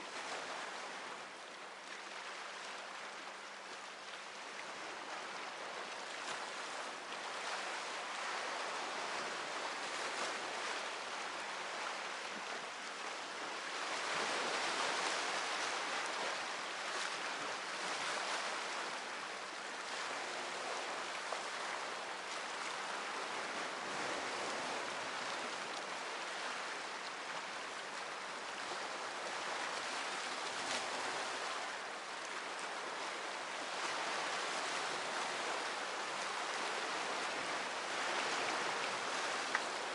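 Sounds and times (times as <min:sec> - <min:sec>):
sea waves washing ashore: 0:00.0 - 0:39.9.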